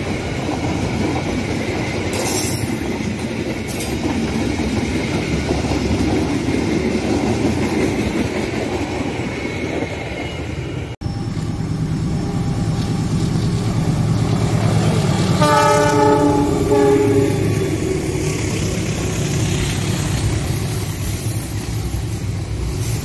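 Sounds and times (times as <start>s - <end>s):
train wheels on rails: 0.0s - 23.0s
locomotive engine rumble: 11.0s - 22.8s
train horn blast: 15.4s - 18.1s.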